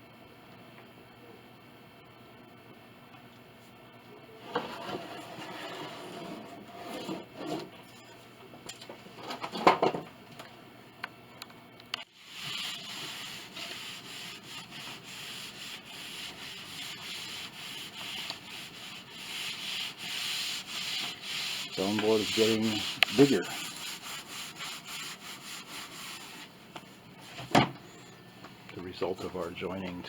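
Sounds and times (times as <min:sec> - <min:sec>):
sandpaper rubbing on wood: 0:12.2 - 0:26.5.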